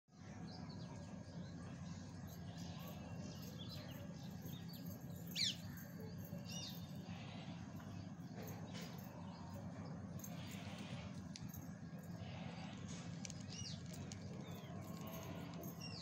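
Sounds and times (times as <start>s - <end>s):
steady low hum: 0.2s - 16.0s
birds chirping: 0.4s - 16.0s.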